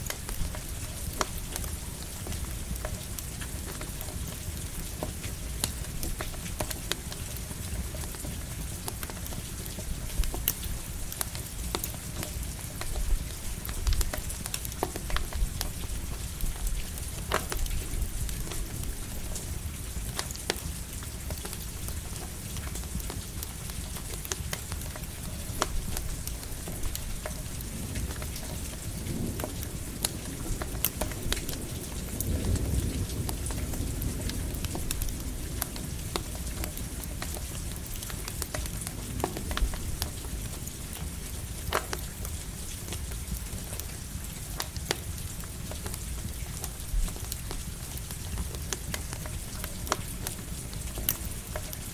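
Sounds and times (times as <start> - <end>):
campfire crackling and popping: 0.0 - 51.9
light rain patter: 0.0 - 51.9
low rumble of thunder: 27.6 - 38.0.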